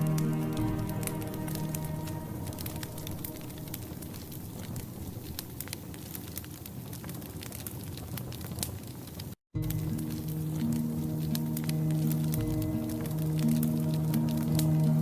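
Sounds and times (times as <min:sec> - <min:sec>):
soft music: 0:00.0 - 0:05.4, 0:09.6 - 0:15.0
soft fire hiss: 0:00.0 - 0:15.0
wood fire crackling and popping: 0:00.0 - 0:15.0.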